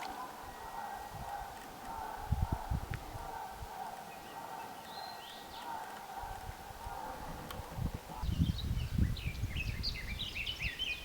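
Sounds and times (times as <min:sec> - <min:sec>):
small songbirds chirping: 0:00.0 - 0:11.0
wind on microphone: 0:01.0 - 0:03.7, 0:06.2 - 0:11.0.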